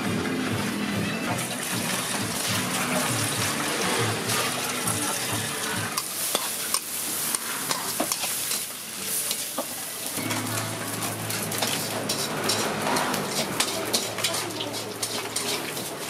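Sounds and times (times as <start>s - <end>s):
food sizzling in a pan: 0.0s - 16.0s
utensil clinking against pan: 11.3s - 16.0s.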